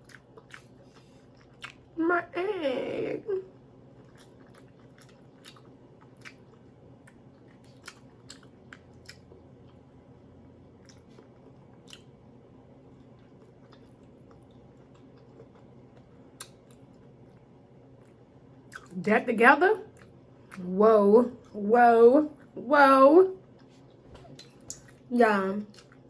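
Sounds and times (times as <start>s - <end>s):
faint low hum: 0.0s - 26.0s
wet mouth clicks and smacks: 11.8s - 12.1s, 16.4s - 16.8s, 24.1s - 25.0s.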